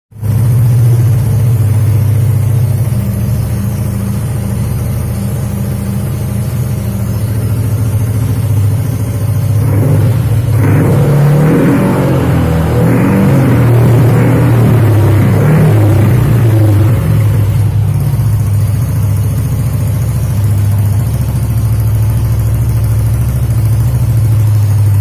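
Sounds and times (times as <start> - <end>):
scooter engine idling and revving: 0.1 - 25.0.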